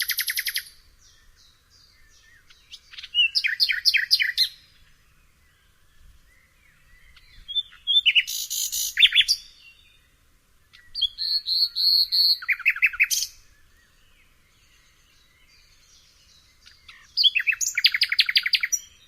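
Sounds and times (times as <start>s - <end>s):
nightingale singing: 0.0s - 19.0s.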